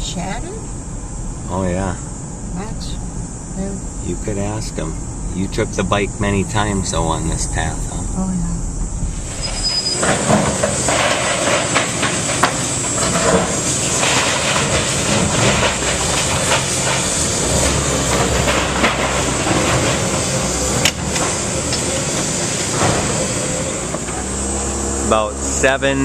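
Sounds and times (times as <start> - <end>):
steady rushing noise: 0.0 - 26.0
debris clattering and crashing: 9.2 - 24.7.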